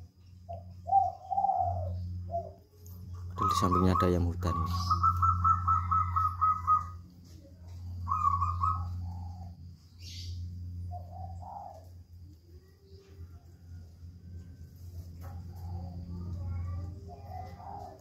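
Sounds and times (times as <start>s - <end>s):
dove cooing: 0.0s - 18.0s
low hum: 0.0s - 18.0s
bird calling high notes: 0.5s - 7.1s, 8.0s - 11.9s.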